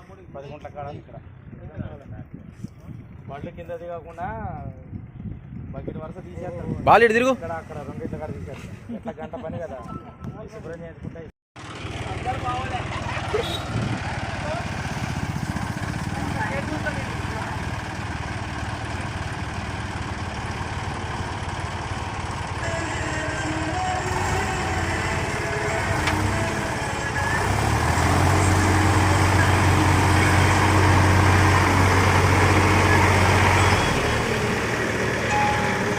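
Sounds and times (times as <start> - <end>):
diesel engine running: 11.6 - 35.9.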